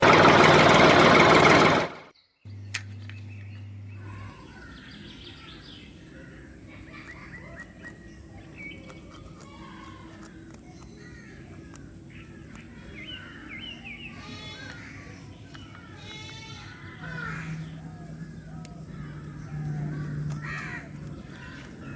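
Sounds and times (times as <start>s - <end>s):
loud noise cut off: 0.0s - 2.1s
birds chirping and trilling: 0.0s - 21.9s
faint low hum: 2.2s - 21.9s.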